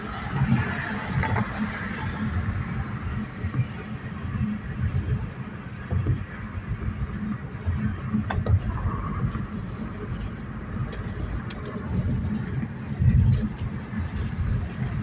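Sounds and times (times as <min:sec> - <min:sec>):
car engine exhaust rumble: 0:00.0 - 0:15.0.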